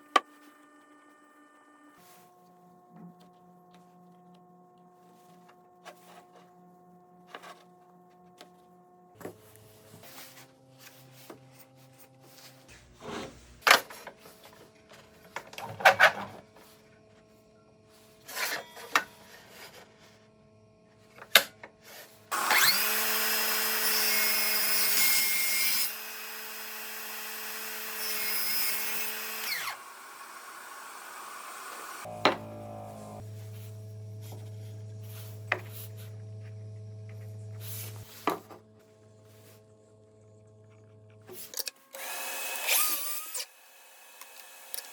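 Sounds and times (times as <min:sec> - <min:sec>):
electric power tool running: 0:22.3 - 0:33.2, 0:42.0 - 0:44.9.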